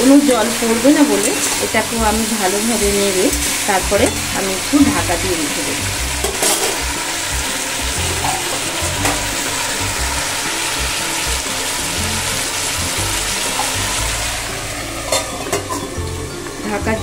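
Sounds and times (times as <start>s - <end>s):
potatoes sizzling in oil: 0.0s - 17.0s
lid knocking onto pan: 8.0s - 9.6s.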